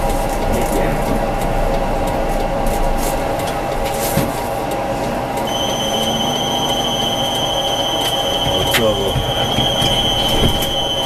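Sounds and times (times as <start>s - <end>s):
rail clicks: 0.0s - 11.0s
tram running on rails: 0.0s - 11.0s
high wheel squeal: 5.5s - 11.0s.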